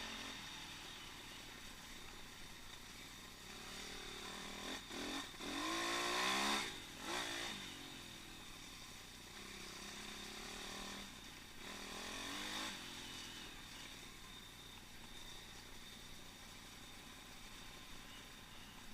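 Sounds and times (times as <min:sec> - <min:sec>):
pit bike engine revving: 0:00.0 - 0:01.5, 0:03.3 - 0:14.0.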